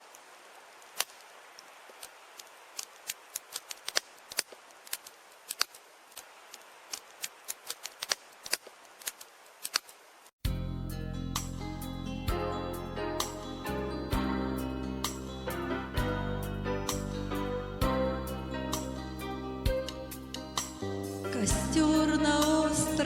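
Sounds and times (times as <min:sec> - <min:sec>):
soft fire hiss: 0:00.0 - 0:10.3
campfire crackling: 0:00.0 - 0:10.4.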